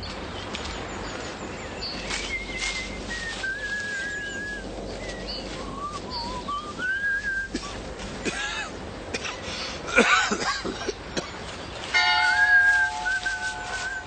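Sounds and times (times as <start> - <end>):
person whistling a slow tune: 2.7 - 4.6, 5.7 - 7.5, 12.4 - 14.0.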